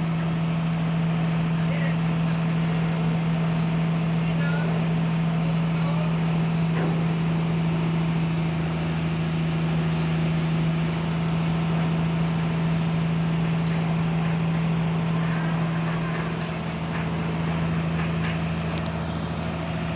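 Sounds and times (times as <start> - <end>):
engine humming: 0.0 - 19.9.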